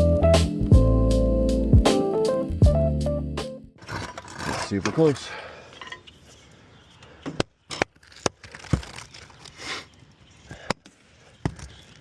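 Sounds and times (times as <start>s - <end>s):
crackling scrapes of roofing: 3.8s - 6.4s, 7.7s - 9.9s.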